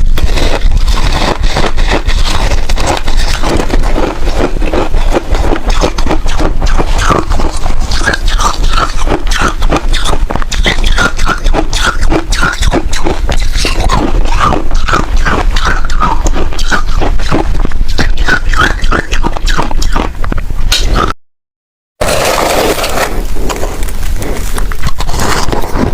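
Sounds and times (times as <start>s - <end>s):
chewing crunchy frost: 0.0s - 21.1s, 22.0s - 25.9s.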